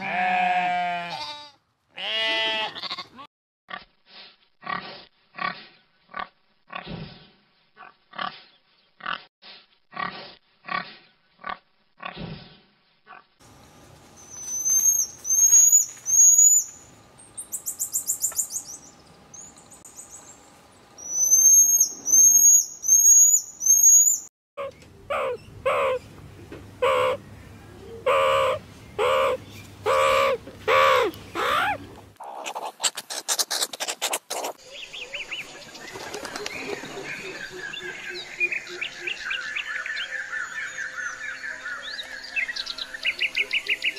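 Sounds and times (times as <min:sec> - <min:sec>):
pitched animal calls: 0:24.6 - 0:26.0, 0:26.8 - 0:27.2, 0:28.0 - 0:34.6.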